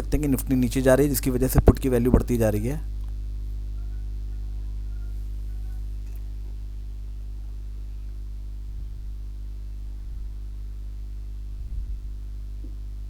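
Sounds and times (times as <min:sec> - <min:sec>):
low electrical hum: 0:00.0 - 0:13.0
faint low bumps: 0:08.6 - 0:10.6, 0:11.4 - 0:13.0.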